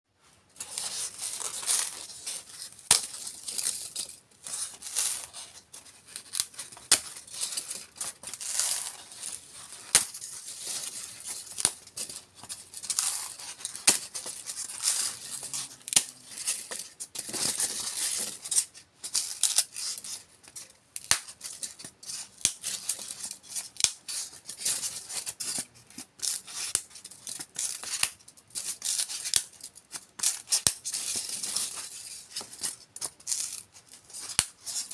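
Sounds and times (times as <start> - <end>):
styrofoam crackling and snapping: 0.6 - 18.6, 26.2 - 34.9.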